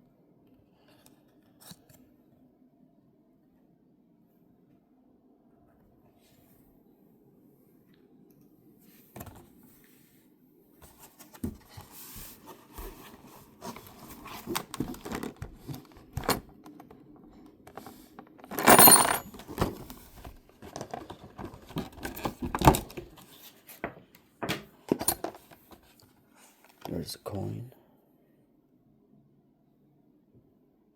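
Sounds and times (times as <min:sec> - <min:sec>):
small pieces clicking and clinking: 0:18.5 - 0:19.3
rattling crinkle: 0:18.5 - 0:23.2.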